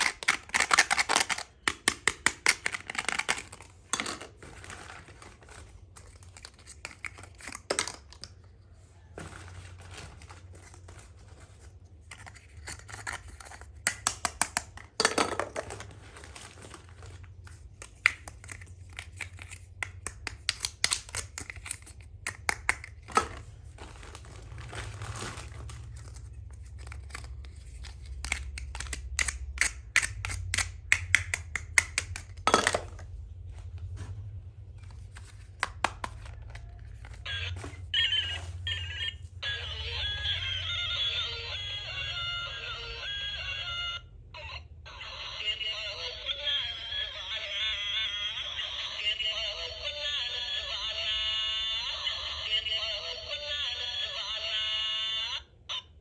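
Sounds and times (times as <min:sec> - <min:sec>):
plastic pieces clicking and tapping: 0:00.0 - 0:08.5, 0:11.6 - 0:23.5, 0:26.2 - 0:33.0, 0:35.1 - 0:37.8
packaging crinkling: 0:02.4 - 0:13.9, 0:15.6 - 0:19.8, 0:22.8 - 0:29.2.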